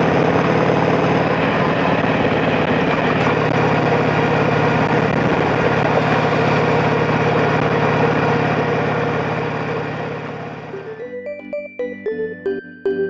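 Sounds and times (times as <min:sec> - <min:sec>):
motorcycle engine running steadily: 0:00.0 - 0:10.7.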